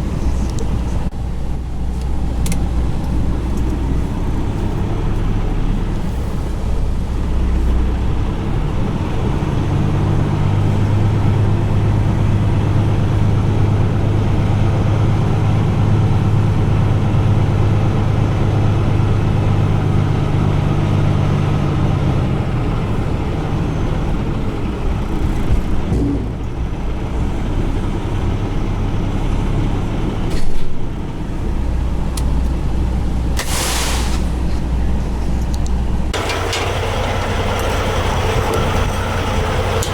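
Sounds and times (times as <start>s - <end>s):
diesel truck engine droning: 0.0s - 39.9s
air hiss: 33.4s - 34.5s.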